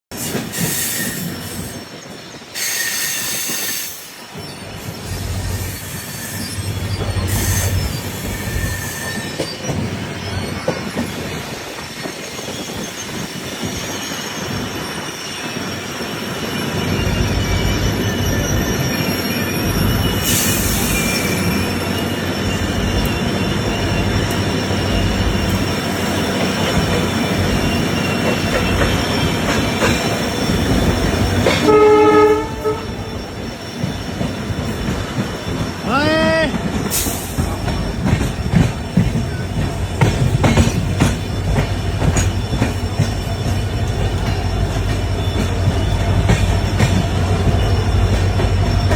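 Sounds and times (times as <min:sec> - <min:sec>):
train wheels rumbling on track: 0:00.0 - 0:48.9
train horn: 0:31.5 - 0:33.1.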